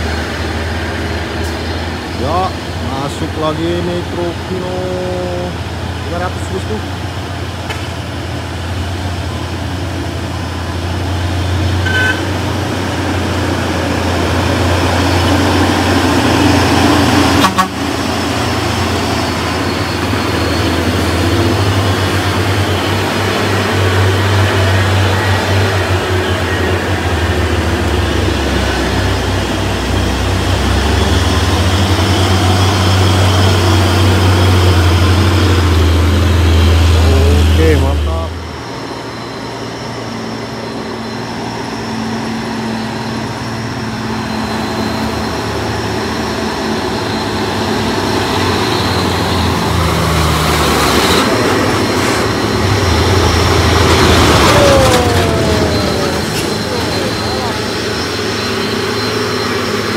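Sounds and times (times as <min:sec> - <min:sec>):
diesel truck engine labouring: 0:00.0 - 0:59.9
truck horn toot: 0:11.8 - 0:12.6, 0:17.1 - 0:18.3.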